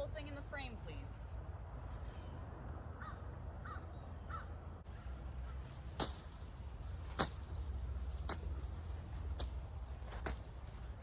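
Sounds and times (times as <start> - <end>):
steady low rumble: 2.7 - 11.0.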